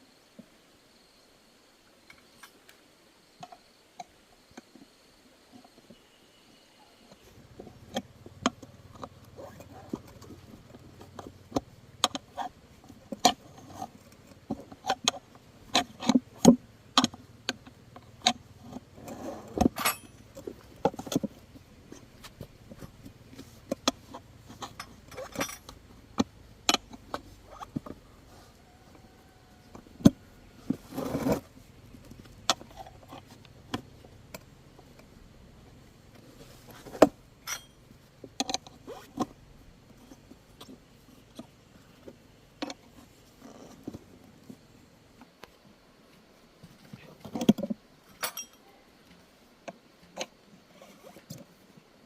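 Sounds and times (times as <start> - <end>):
hand tools clicking and clinking: 19.0 - 21.3, 23.4 - 27.9, 37.4 - 37.8, 48.1 - 48.6.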